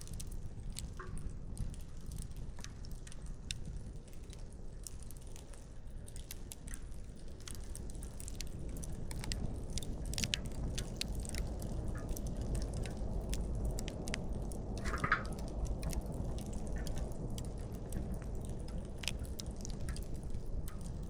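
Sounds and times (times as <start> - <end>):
campfire crackling and popping: 0.0 - 21.0
low steady rumble: 7.9 - 21.0.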